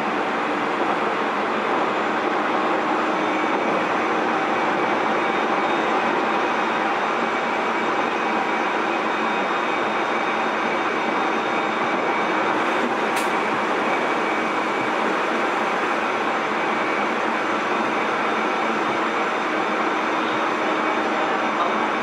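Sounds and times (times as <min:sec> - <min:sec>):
train wheels rumbling on rail: 0:00.0 - 0:22.0
sharp click: 0:13.2 - 0:13.4.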